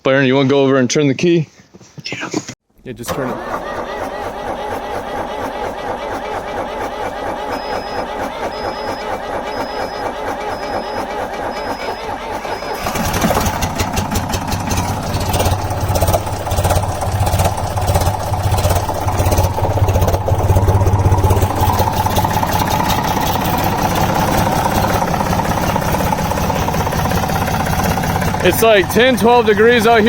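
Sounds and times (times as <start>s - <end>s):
engine cranking: 2.9s - 30.0s
diesel engine idling: 3.1s - 30.0s.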